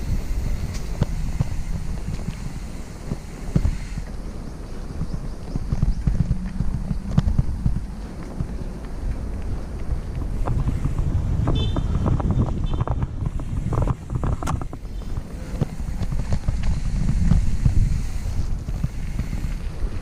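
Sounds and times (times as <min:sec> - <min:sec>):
wind buffeting microphone: 0:00.0 - 0:20.0
bike frame rattling and knocking: 0:09.6 - 0:17.9.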